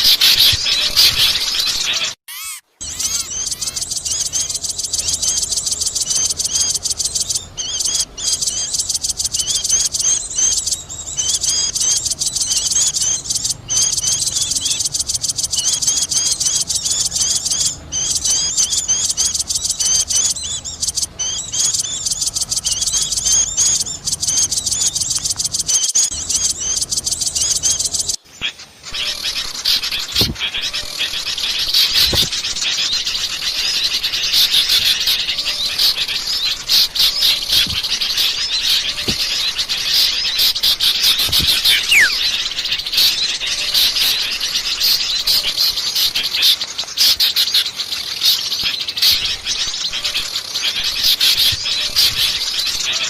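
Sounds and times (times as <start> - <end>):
songbirds chirping and twittering: 0.0 - 53.0.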